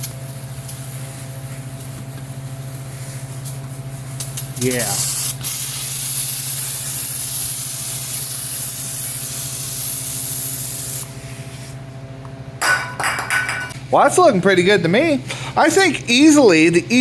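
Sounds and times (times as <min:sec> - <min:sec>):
aerosol can spraying: 0:03.2 - 0:11.2.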